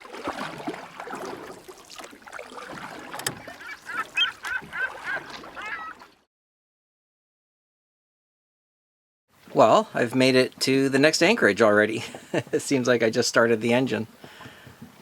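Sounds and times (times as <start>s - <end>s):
boat noise: 0.0s - 6.3s
water: 0.0s - 6.3s, 9.3s - 15.0s
bird calls: 3.2s - 6.1s.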